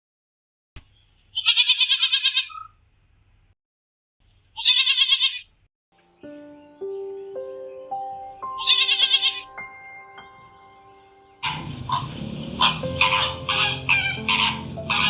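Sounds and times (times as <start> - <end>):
goat bleating: 1.4 - 2.6, 4.6 - 5.5, 8.6 - 9.5.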